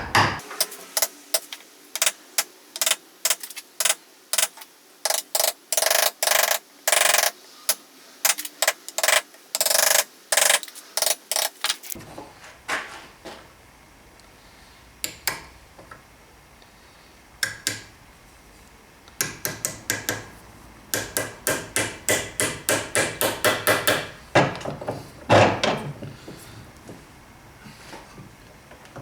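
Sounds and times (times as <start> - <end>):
hammer striking wood: 0.0 - 0.4, 19.2 - 20.3, 20.9 - 24.6.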